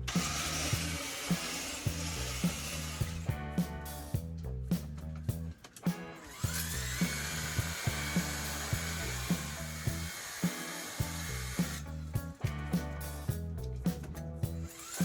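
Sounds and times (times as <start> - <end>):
power tool whining: 0.1 - 3.2, 6.2 - 11.8, 14.7 - 15.0
background music with a beat: 0.2 - 15.0.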